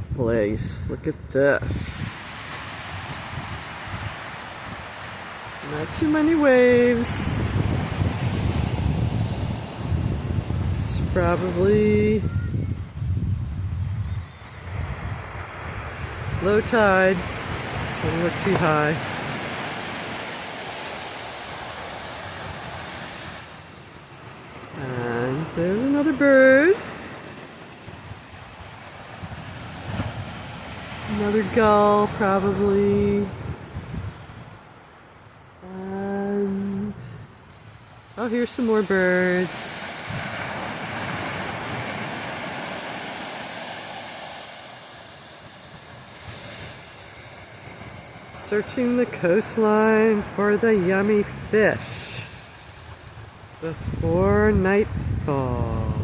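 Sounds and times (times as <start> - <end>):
wind rumbling on microphone: 0.0 - 23.7, 24.4 - 34.8, 50.2 - 56.0
gentle surf washing on beach: 0.0 - 56.0.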